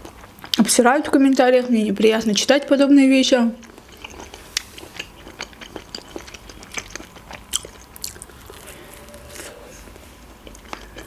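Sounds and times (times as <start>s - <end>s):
person chewing crunchy food: 0.0s - 0.6s, 3.6s - 11.0s.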